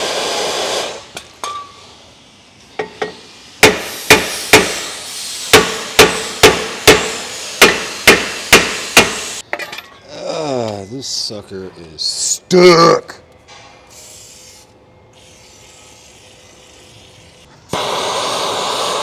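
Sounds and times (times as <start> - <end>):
hammer striking metal: 2.8 - 4.9, 5.5 - 10.0.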